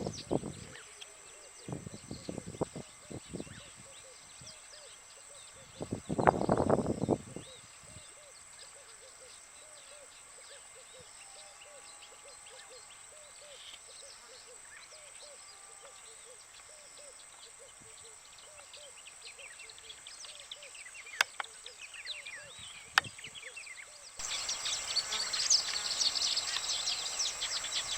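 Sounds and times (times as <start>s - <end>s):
faint high chirps: 24.2s - 27.9s.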